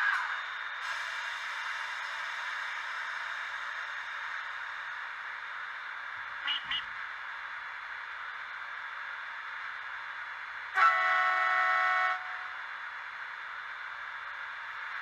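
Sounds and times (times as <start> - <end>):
model locomotive running hiss: 0.0 - 15.0
locomotive horn blast: 10.8 - 12.5.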